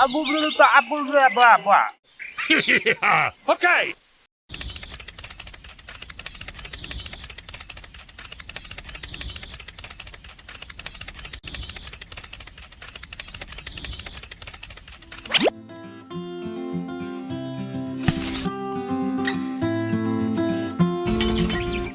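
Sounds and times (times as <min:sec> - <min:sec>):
rapid mechanical clicking rattle: 0:04.5 - 0:15.4.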